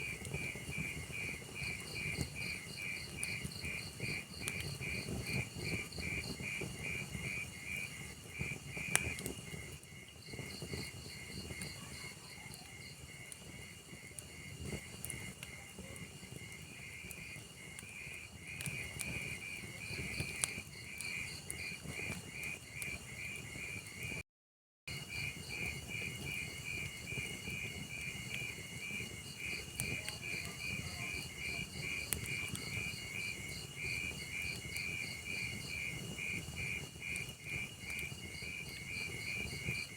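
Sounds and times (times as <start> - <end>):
log fire crackling and popping: 0.0 - 24.2, 25.0 - 39.9
crickets chirping: 24.9 - 39.9.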